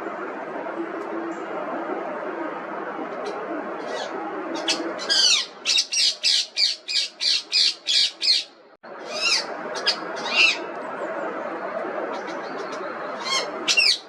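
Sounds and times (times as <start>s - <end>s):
parakeet squawking: 3.8s - 8.5s, 9.1s - 10.6s, 12.5s - 14.0s.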